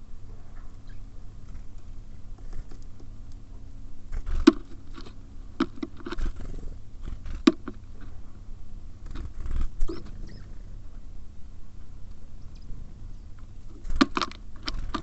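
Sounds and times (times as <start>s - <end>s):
birds scratching on feeder: 1.3s - 3.2s, 4.1s - 8.4s, 9.0s - 10.6s, 13.4s - 15.0s.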